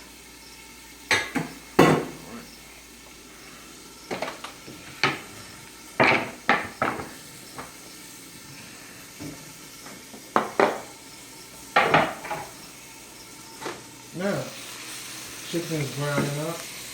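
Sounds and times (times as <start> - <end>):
dishes and utensils clattering: 1.1 - 2.4, 4.1 - 5.4, 6.0 - 7.8, 10.3 - 10.9, 11.8 - 12.6.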